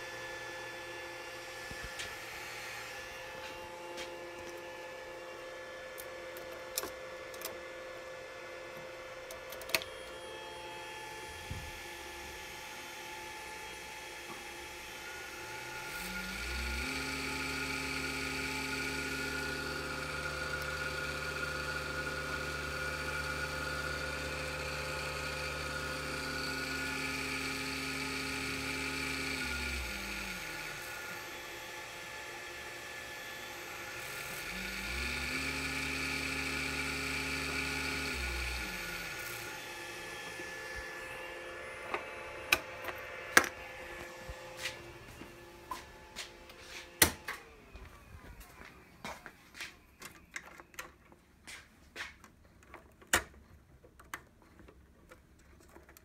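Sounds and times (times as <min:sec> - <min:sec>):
servo motor whining: 0:13.7 - 0:45.6.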